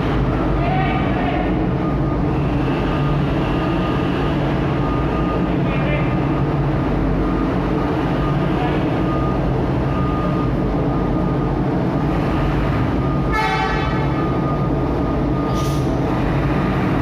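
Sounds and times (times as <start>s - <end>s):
truck engines rumbling: 0.0s - 17.0s
truck horn honk: 13.3s - 14.3s.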